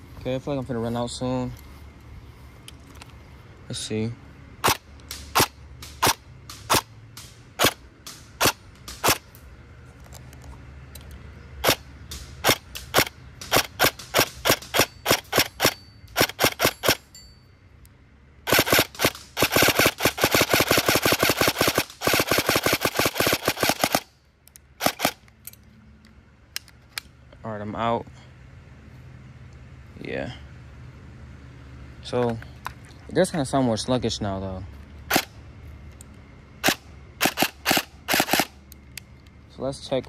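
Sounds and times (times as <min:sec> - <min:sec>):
airsoft gun firing: 0:18.5 - 0:24.1, 0:36.6 - 0:38.5.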